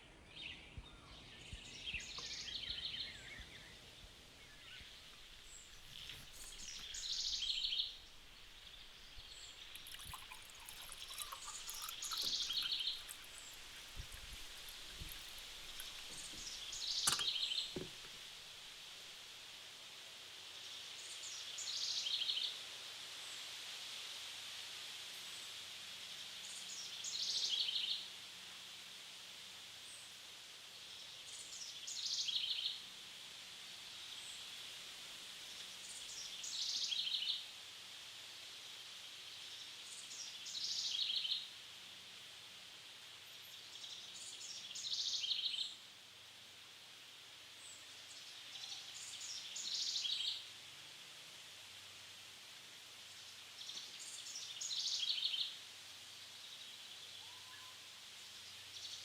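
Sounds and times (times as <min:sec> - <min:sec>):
steady high hiss: 0:00.0 - 0:59.0
bird chirping: 0:00.4 - 0:18.3.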